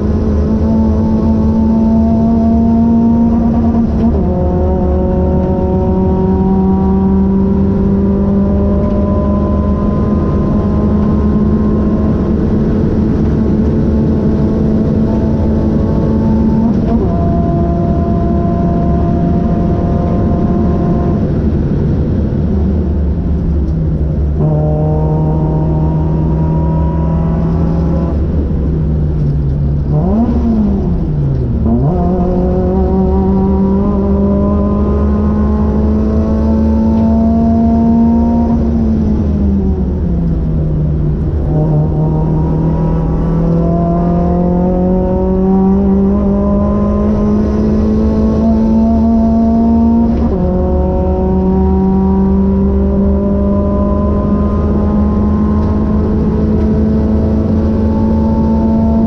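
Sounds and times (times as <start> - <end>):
car engine revving in cabin: 0.0 - 59.0.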